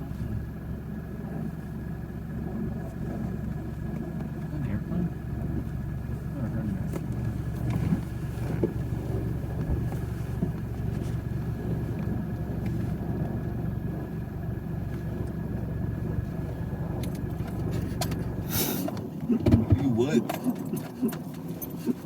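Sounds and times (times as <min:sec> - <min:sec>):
vehicle engine rumbling: 0:00.0 - 0:22.0
short hissy rustle: 0:18.5 - 0:18.9.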